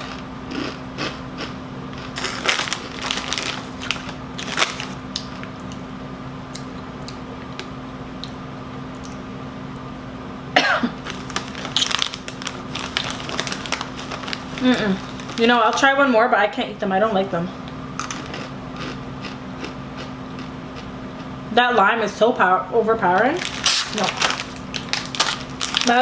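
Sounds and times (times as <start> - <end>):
crunchy chips being chewed: 0.0 - 5.8, 11.0 - 15.5, 18.0 - 21.3, 23.4 - 26.0.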